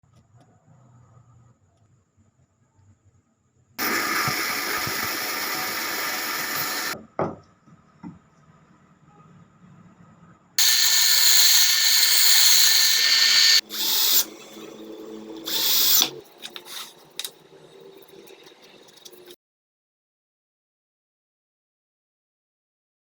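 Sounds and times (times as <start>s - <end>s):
handheld power tool running: 3.8s - 7.0s, 10.6s - 14.5s, 15.4s - 16.7s.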